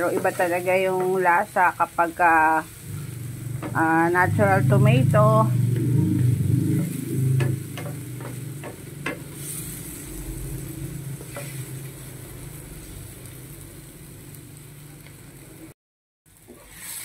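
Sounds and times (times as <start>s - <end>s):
low steady hum: 0.0s - 15.7s
vegetables sizzling in a pan: 0.0s - 17.0s
spatula knocking against pan: 7.4s - 9.3s.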